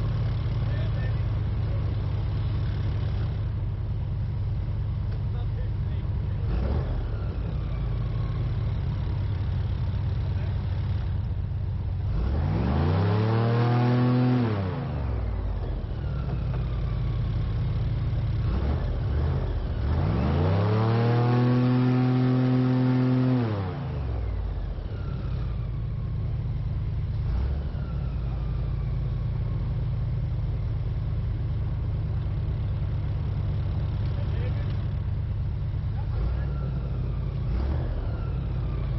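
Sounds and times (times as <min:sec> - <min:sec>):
airboat engine and propeller revving: 0:11.9 - 0:16.7, 0:18.3 - 0:26.2.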